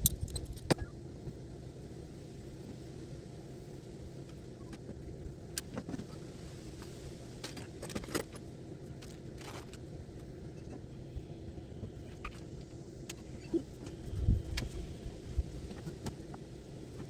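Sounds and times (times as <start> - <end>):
steady low rumble: 9.9 - 17.0.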